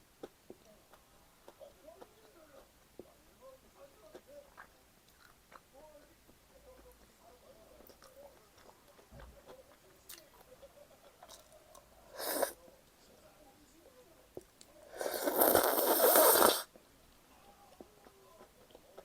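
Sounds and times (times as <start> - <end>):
person chewing food: 0.2 - 3.2, 4.1 - 7.1, 7.8 - 12.5.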